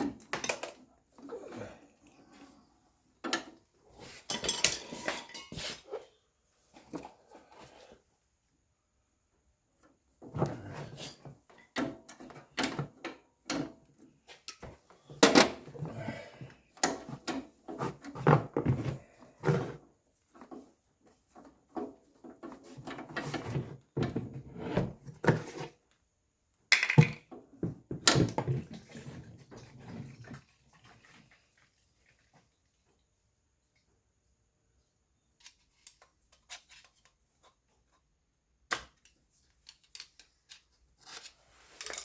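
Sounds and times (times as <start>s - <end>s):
objects knocking and clattering: 0.0s - 0.9s, 3.2s - 5.8s, 10.2s - 25.6s, 26.7s - 30.6s.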